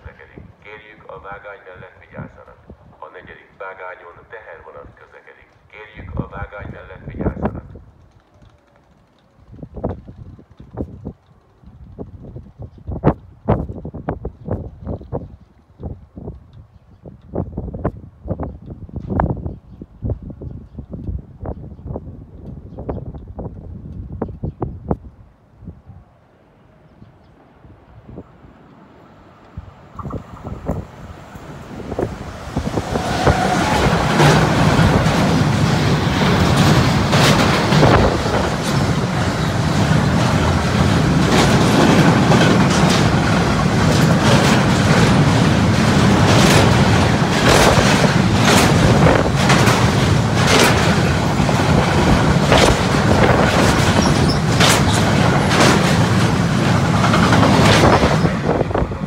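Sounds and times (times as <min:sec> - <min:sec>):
freight train rolling rumble: 0:00.0 - 0:59.0
wheels clacking over rail joints: 0:28.6 - 0:59.0.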